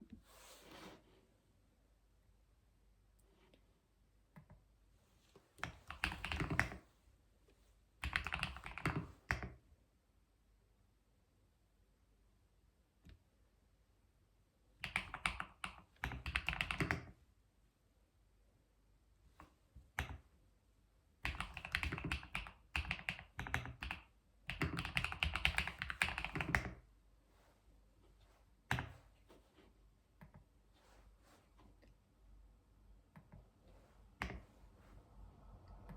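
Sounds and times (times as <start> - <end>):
computer keyboard typing: 5.6 - 6.8, 8.0 - 9.5, 14.8 - 17.1, 21.2 - 26.8.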